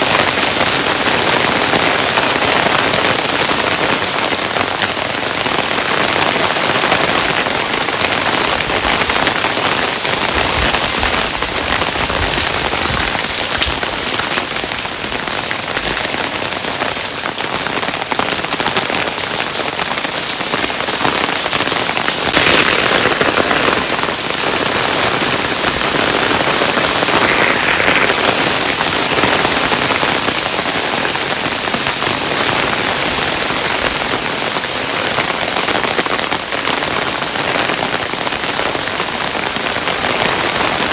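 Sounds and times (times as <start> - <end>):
hailstones striking a surface: 0.2 - 31.5.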